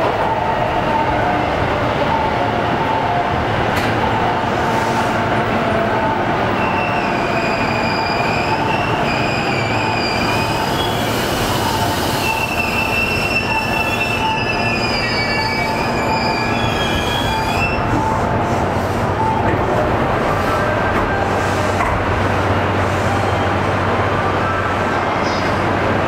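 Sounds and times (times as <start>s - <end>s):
train rumble: 0.0s - 26.0s
high-pitched wheel squeal: 6.6s - 17.9s.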